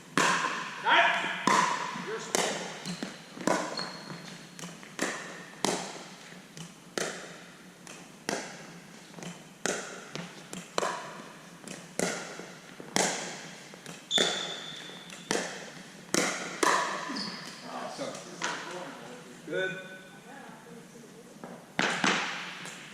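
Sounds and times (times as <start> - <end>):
paddles striking plastic ball: 1.4 - 3.7, 6.9 - 14.0, 15.2 - 17.0.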